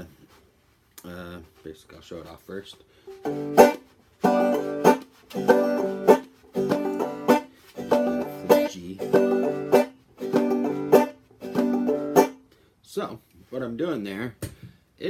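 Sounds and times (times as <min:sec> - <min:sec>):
banjo chords with muted slaps: 0:03.1 - 0:12.5.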